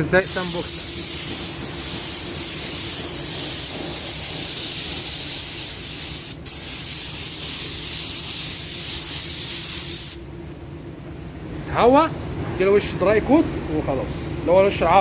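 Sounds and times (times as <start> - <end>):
paint spray gun hissing: 0.2 - 10.2.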